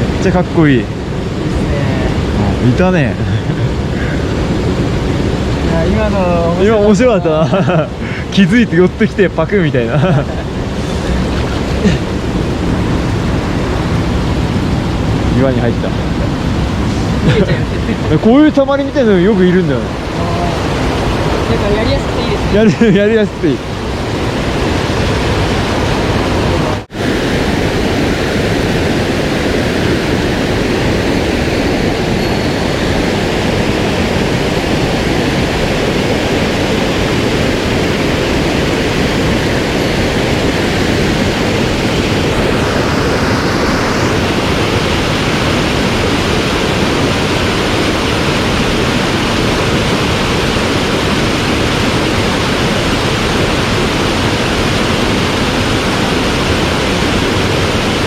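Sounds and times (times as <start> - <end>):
mountain stream rushing: 0.0 - 58.0.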